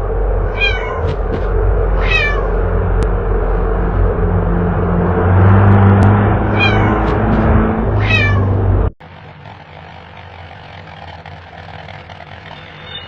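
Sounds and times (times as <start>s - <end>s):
loud low hum: 0.0s - 13.0s
kitten meowing: 0.5s - 1.2s, 2.0s - 2.5s, 6.5s - 7.2s, 8.0s - 8.5s.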